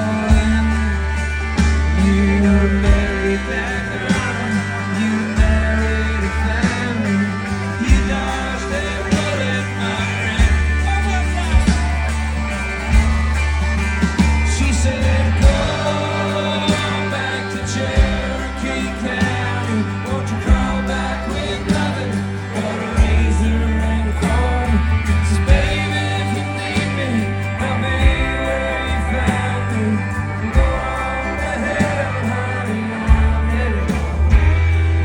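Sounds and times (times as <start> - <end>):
country band playing live: 0.0 - 35.0.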